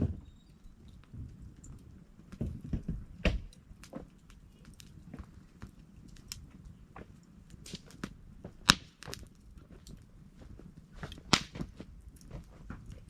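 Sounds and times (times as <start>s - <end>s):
campfire crackling: 0.0s - 13.0s
sharp loud pops: 11.3s - 11.6s.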